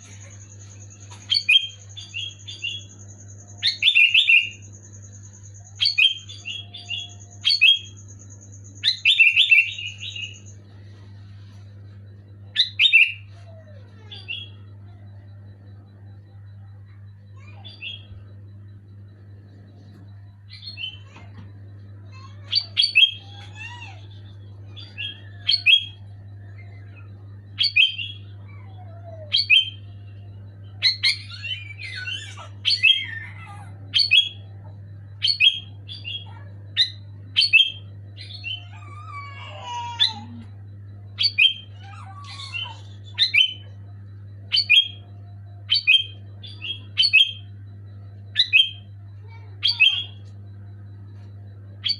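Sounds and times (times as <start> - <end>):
bird calling in high notes: 0.0 - 11.8, 12.4 - 15.8, 16.7 - 18.4, 19.4 - 40.6, 41.2 - 43.8, 48.3 - 50.4
lower gliding bird calls: 0.0 - 51.9
steady low hum: 0.0 - 51.9.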